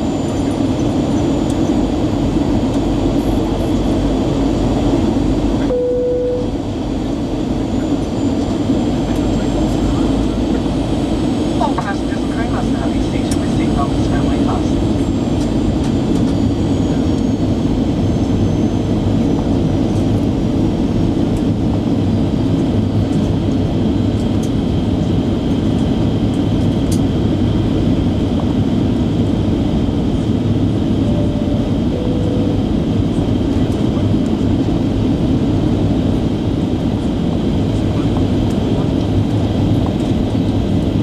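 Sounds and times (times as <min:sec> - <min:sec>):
thin steady whine: 0:00.0 - 0:23.4, 0:28.2 - 0:36.0
jet engines and rushing air: 0:00.0 - 0:41.0.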